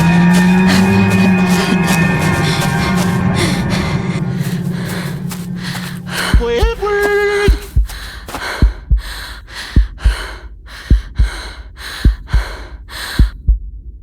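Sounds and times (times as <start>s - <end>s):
heavy panting breaths: 0.0s - 13.4s
heartbeat double thumps: 4.5s - 13.8s.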